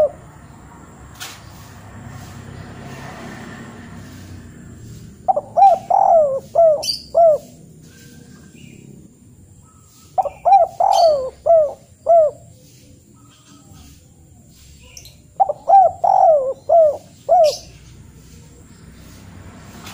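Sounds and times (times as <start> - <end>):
bird calling: 0.0 - 0.6, 4.8 - 18.8.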